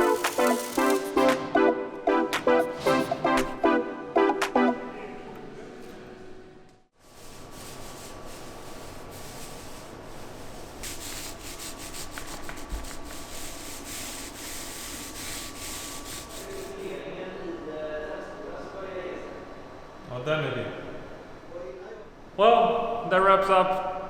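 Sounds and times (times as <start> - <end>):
rapid scraping strokes on surface: 0.0 - 1.4, 7.0 - 17.0.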